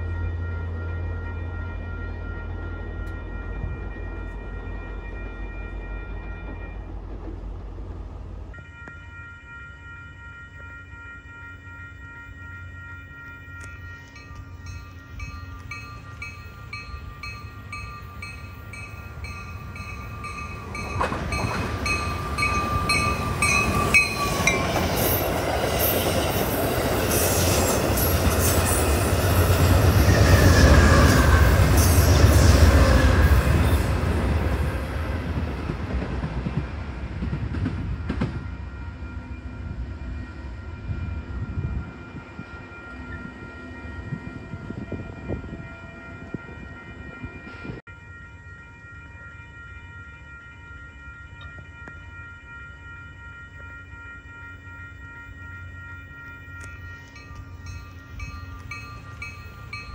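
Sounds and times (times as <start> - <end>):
train wheels rumbling on rails: 2.7 - 8.7, 13.0 - 39.9.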